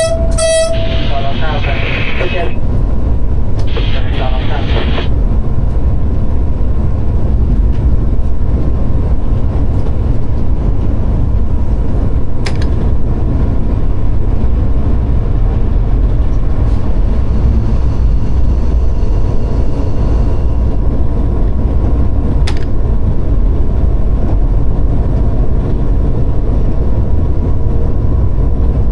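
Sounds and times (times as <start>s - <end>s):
diesel locomotive rumbling: 0.0s - 28.9s
sharp clicks: 22.4s - 22.7s.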